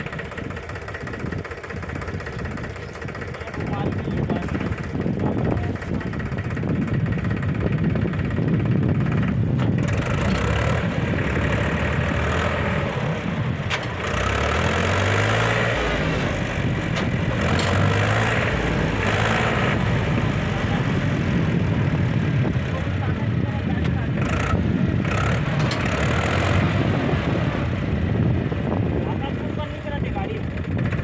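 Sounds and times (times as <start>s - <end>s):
diesel engine revving: 0.0s - 31.0s.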